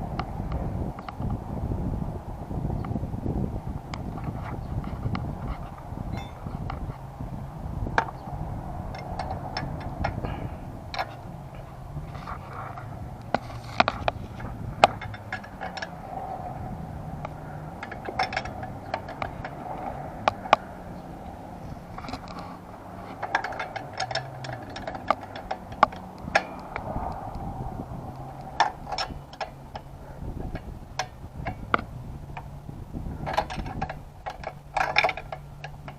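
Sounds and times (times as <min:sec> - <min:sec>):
low hum: 0:00.0 - 0:35.9
hand tools clinking and scraping: 0:05.5 - 0:06.6, 0:08.9 - 0:16.6, 0:17.2 - 0:26.9, 0:33.2 - 0:35.9.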